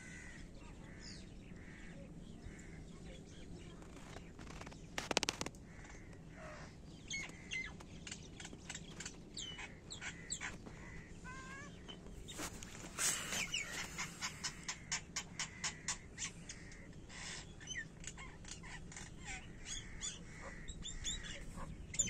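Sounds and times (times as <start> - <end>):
birds chirping and whistling: 6.6 - 10.6, 11.5 - 22.0.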